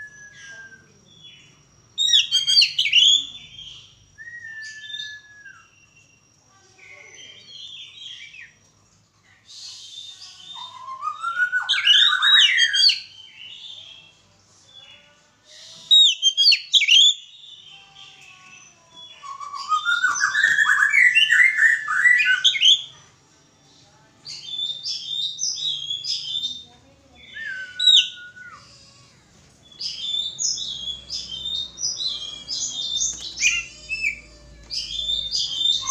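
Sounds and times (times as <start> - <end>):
bird singing whistles and chirps: 0.0 - 6.5, 9.5 - 14.0, 15.5 - 22.9, 24.2 - 28.7, 29.7 - 35.9.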